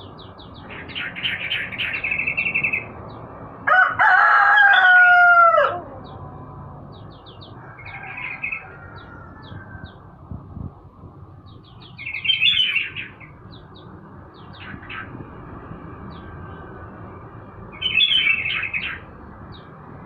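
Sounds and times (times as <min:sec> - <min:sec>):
small birds chirping: 0:00.0 - 0:03.5, 0:05.8 - 0:20.0
rooster crowing: 0:03.6 - 0:06.2, 0:07.5 - 0:10.2.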